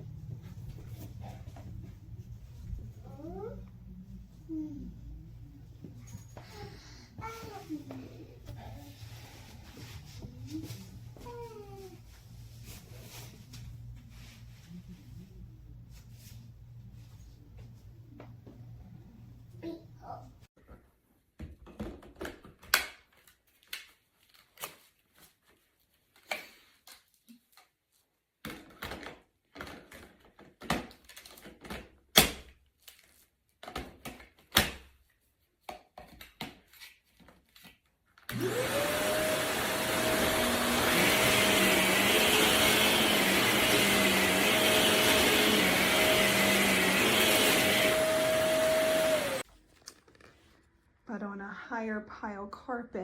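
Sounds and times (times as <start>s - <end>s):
vacuum cleaner running: 38.3s - 49.5s.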